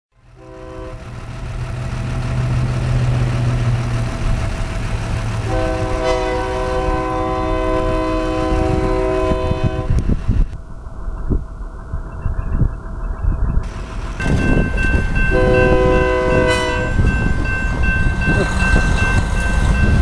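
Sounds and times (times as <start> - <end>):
diesel locomotive engine hum: 0.1 - 20.0
locomotive air horn: 0.3 - 1.2, 5.4 - 10.2, 15.2 - 17.2.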